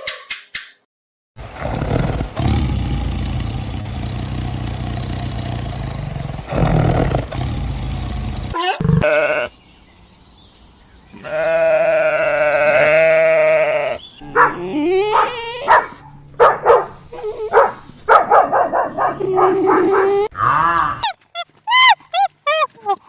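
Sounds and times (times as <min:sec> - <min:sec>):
animal bleating: 0:08.6 - 0:09.5, 0:11.1 - 0:15.9.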